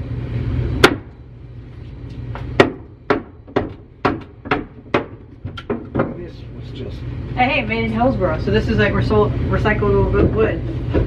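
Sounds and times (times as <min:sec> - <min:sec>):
hammer striking wooden boards: 0:00.8 - 0:01.1, 0:02.6 - 0:06.2.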